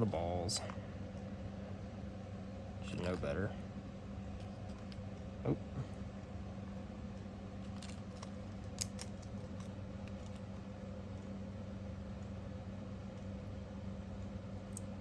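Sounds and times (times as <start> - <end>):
electrical hum: 0.0 - 15.0
small metal parts clicking: 7.6 - 10.4.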